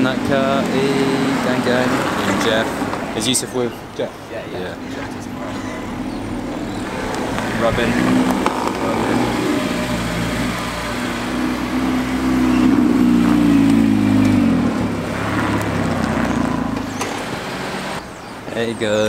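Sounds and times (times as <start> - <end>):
car engine running: 4.7 - 18.1.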